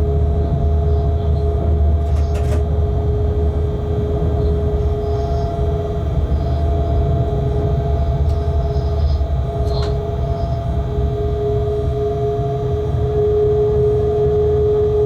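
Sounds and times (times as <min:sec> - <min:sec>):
locomotive rumble: 0:00.0 - 0:15.0
steady whine: 0:00.0 - 0:15.0.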